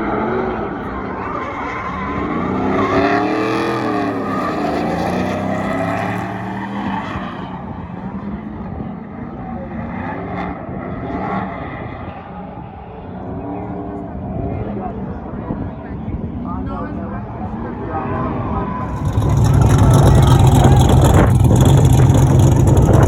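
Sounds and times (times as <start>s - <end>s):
car engines revving: 0.0s - 12.5s, 18.8s - 23.0s.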